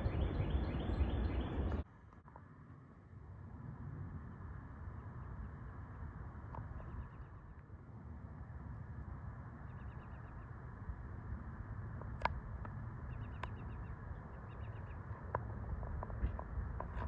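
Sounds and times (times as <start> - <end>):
small birds chirping: 0.0 - 1.8, 9.6 - 10.6, 13.0 - 15.3.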